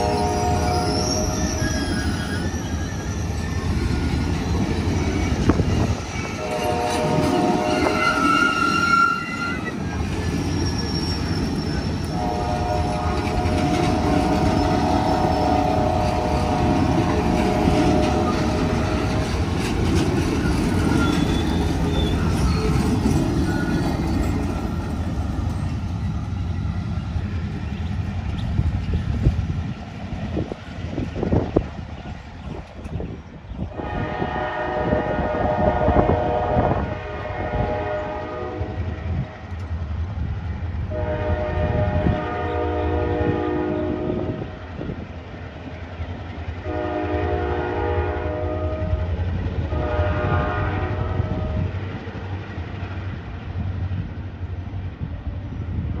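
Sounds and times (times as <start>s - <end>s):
locomotive horn: 0.0s - 1.8s, 6.2s - 9.7s, 12.1s - 19.4s, 33.7s - 39.2s, 40.9s - 44.4s, 46.6s - 51.7s
train wheels clattering on rails: 0.0s - 33.5s.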